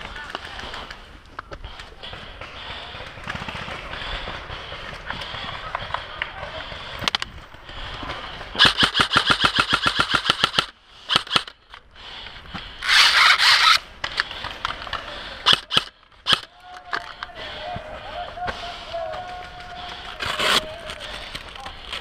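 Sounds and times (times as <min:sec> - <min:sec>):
airsoft rifle firing: 0:08.6 - 0:11.5, 0:15.4 - 0:16.5.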